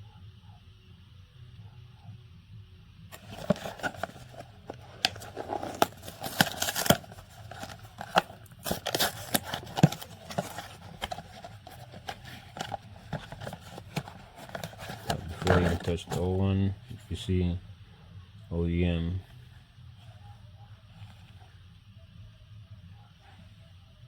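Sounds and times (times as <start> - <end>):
packaging scraping and tearing: 3.1 - 16.4.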